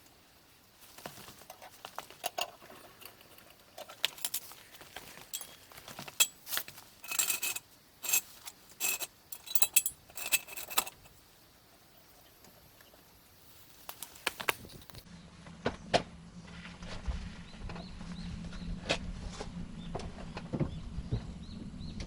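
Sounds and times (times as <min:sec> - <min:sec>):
metal tools clinking: 0:01.4 - 0:11.2
metal clicks: 0:01.5 - 0:11.2.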